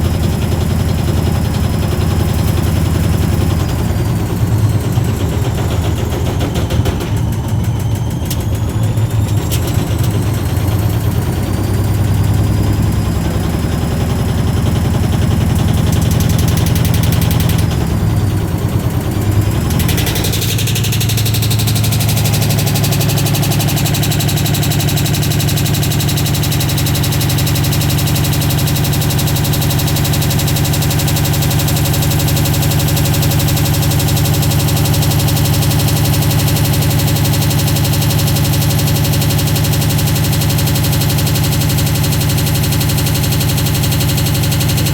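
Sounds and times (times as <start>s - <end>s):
washing machine knocking with stone: 19.6s - 44.9s.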